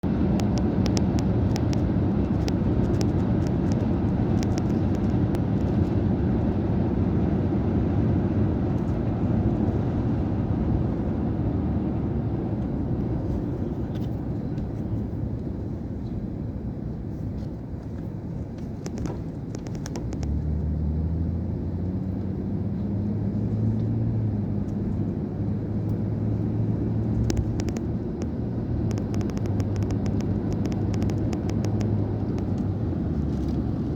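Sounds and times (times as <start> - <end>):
road noise: 0.0 - 33.9
vehicle engine accelerating: 19.6 - 33.9.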